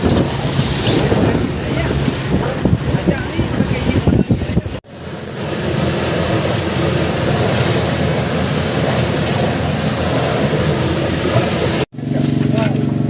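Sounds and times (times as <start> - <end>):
boat engine rumble: 0.0 - 13.0
water rushing: 0.0 - 13.0
wind: 0.0 - 13.0.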